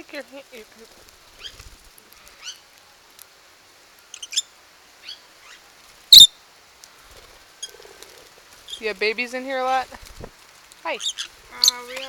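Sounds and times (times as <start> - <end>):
lovebirds chirping: 4.1 - 6.4, 7.6 - 10.2, 10.8 - 12.0.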